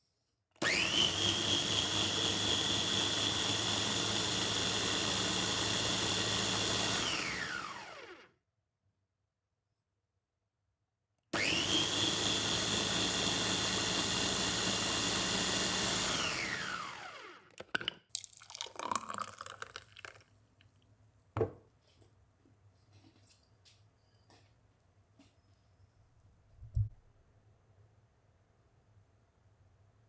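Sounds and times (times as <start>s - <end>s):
electric motor whine: 0.6s - 8.3s, 11.4s - 17.4s.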